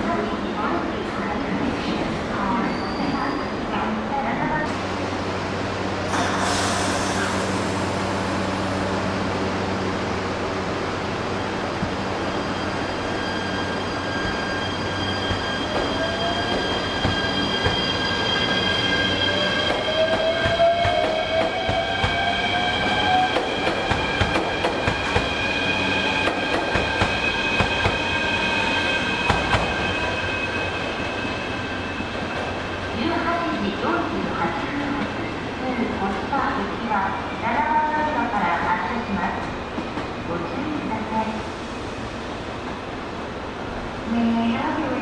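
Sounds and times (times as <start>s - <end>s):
train wheel squeal: 2.4s - 3.6s, 12.0s - 33.0s.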